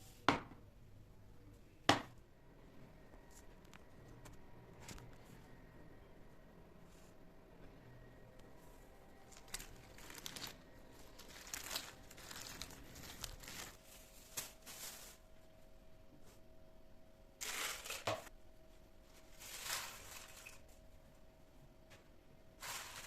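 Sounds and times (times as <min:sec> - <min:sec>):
faint steady hum: 0:00.0 - 0:23.0
crinkling and rustling: 0:03.3 - 0:05.5, 0:08.4 - 0:15.5, 0:17.4 - 0:18.3, 0:19.1 - 0:21.0, 0:22.6 - 0:23.0.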